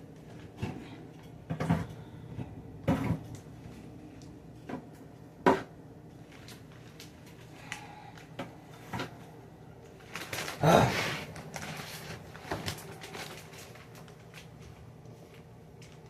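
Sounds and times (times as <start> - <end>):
plastic fridge drawers clattering: 0.4 - 3.4.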